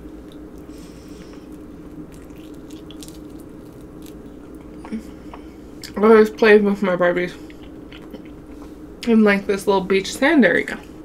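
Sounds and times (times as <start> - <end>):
chewing chicken wing: 0.0 - 6.0
steady low hum: 0.0 - 11.0.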